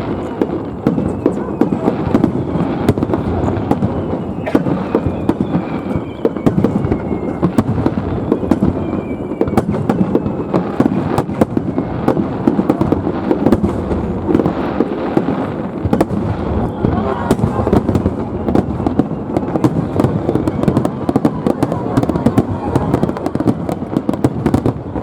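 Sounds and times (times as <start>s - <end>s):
firework bangs: 0.0s - 25.0s
firework crackling: 0.0s - 25.0s.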